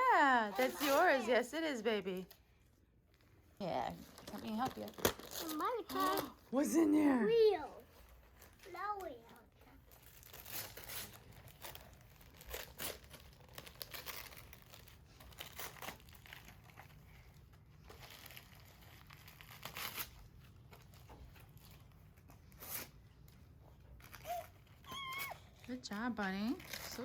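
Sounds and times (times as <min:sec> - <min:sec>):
wrapping paper tearing and rustling: 0:00.0 - 0:02.6, 0:03.2 - 0:27.0.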